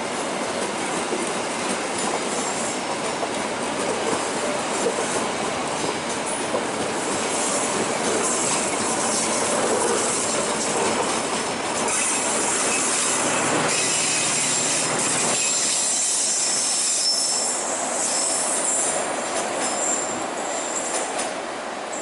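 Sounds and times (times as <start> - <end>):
train wheels and carriages rumbling: 0.0 - 22.0
train wheels squealing: 2.0 - 3.0, 6.3 - 11.2, 11.8 - 22.0.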